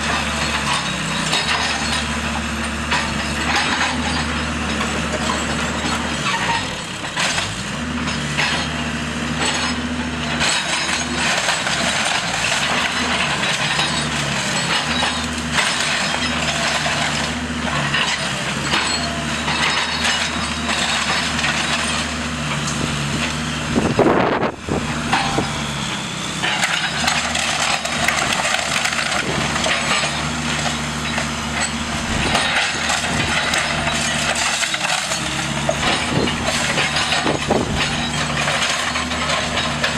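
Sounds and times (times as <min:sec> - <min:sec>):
diesel engine droning: 0:00.0 - 0:39.9
wood cracking and splintering: 0:26.4 - 0:39.9.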